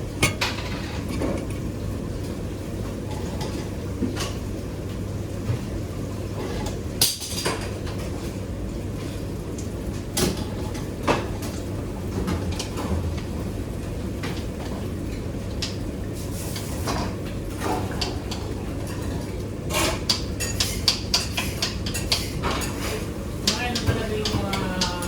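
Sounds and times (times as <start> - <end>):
steady low hum: 0.0 - 3.0
kitchen knocks and clicks: 0.2 - 1.6.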